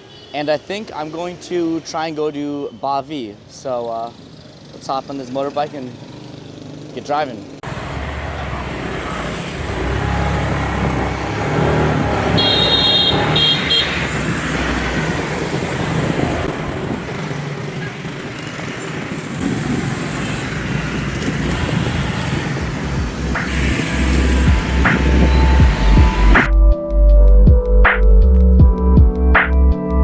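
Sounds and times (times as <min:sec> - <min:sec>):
motorbike and car engines: 0:03.4 - 0:26.5
vehicle horn honking: 0:12.3 - 0:14.0.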